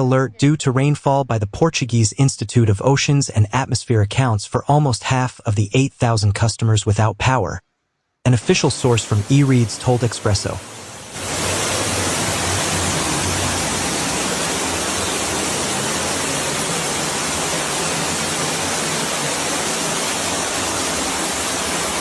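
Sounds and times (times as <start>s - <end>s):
running water: 8.5s - 22.0s
heavy rain: 8.6s - 22.0s.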